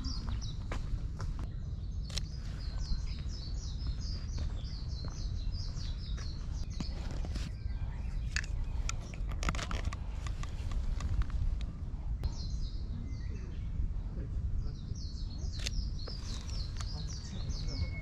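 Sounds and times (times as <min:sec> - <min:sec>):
small bird chirping: 0:00.0 - 0:09.3, 0:14.6 - 0:18.0.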